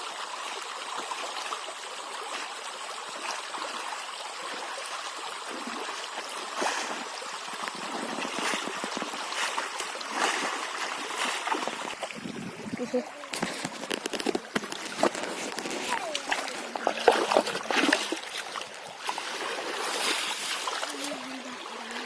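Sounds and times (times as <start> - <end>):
river water running: 0.0 - 22.0
splashes and knocks: 5.5 - 22.0.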